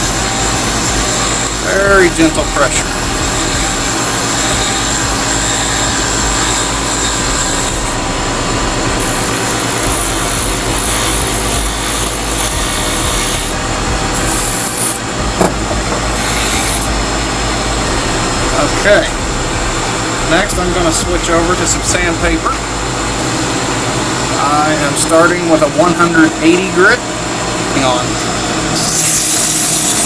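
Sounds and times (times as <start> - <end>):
file scraping spinning wood: 0.0 - 22.7, 28.8 - 30.0
wood lathe humming: 0.0 - 25.6, 28.7 - 30.0.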